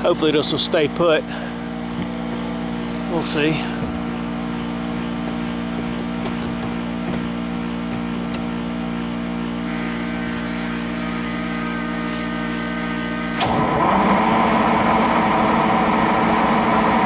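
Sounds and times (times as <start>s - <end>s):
diesel engine cranking by starter: 13.3s - 17.0s.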